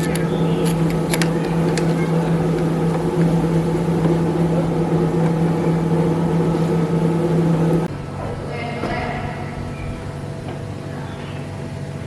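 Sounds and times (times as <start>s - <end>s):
small electric motor humming: 0.0s - 7.9s.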